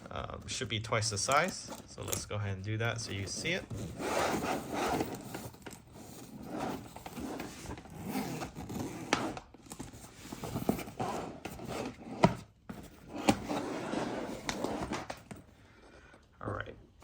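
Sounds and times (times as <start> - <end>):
scraping and handling of shell: 3.0 - 12.0
zipper being pulled: 3.4 - 9.5, 13.0 - 15.1.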